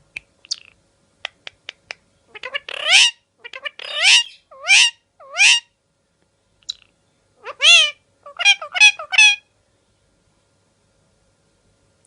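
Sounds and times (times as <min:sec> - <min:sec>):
parrot clicking and chirping: 0:00.1 - 0:04.4
parrot squawking: 0:02.3 - 0:05.7, 0:07.4 - 0:09.5.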